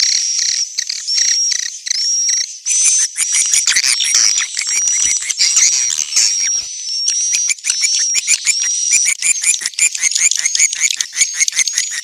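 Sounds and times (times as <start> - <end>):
swiftlets twittering: 3.1 - 12.0.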